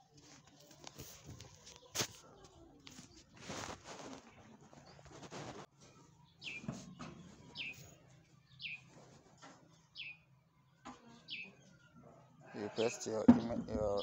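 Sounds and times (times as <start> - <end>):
bird chirping: 6.2 - 9.1, 9.7 - 10.4, 11.1 - 14.0.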